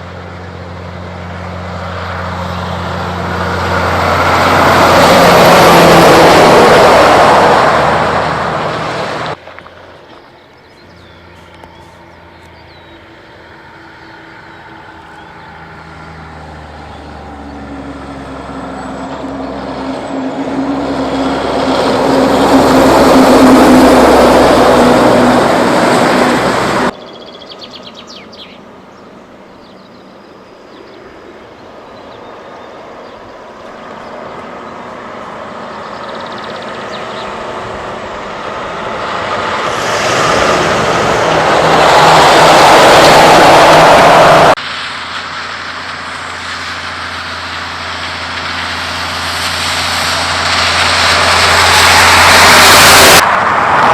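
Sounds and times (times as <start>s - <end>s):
trucks passing on road: 0.0s - 53.9s.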